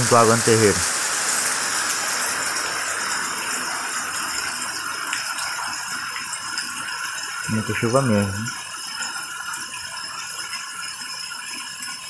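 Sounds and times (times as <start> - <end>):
heavy rain on wet ground: 0.0 - 9.3.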